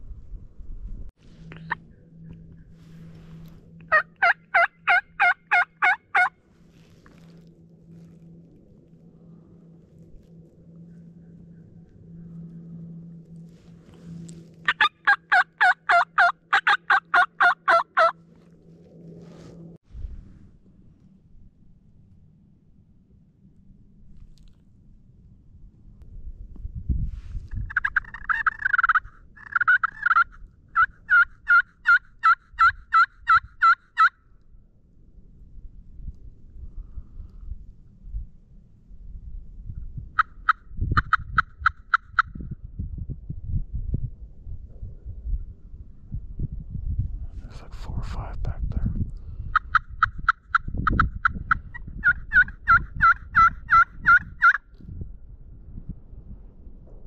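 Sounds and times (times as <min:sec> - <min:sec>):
turkey yelping: 0:03.9 - 0:06.3, 0:14.7 - 0:18.2, 0:27.7 - 0:34.1, 0:40.2 - 0:42.3, 0:49.5 - 0:54.6.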